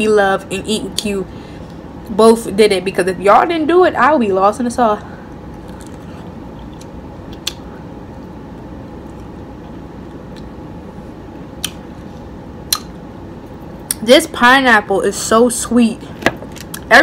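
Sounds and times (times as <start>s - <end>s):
person chewing soft fruit: 5.4s - 10.6s, 11.5s - 13.0s.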